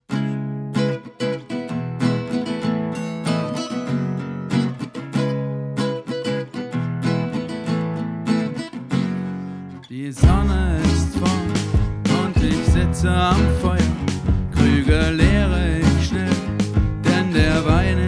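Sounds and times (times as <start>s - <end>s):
acoustic guitar strumming chords: 0.0s - 18.0s
band with heavy bass: 10.2s - 18.0s.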